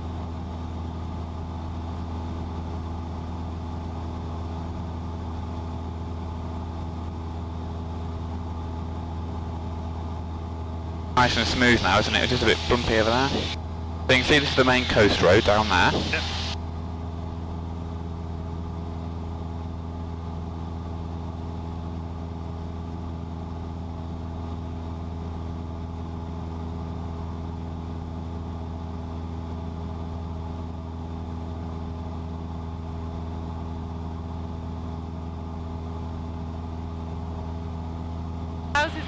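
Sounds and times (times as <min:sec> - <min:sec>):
airplane engine droning in cabin: 0:00.0 - 0:39.0.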